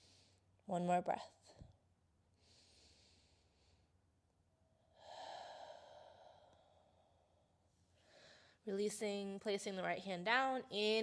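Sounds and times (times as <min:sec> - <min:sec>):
woman breathing deeply: 0:02.4 - 0:04.0, 0:04.8 - 0:08.6.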